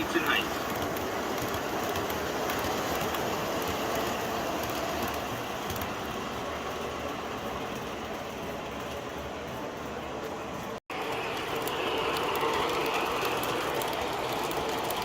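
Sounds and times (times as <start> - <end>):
model train rumbling on track: 0.0 - 15.0.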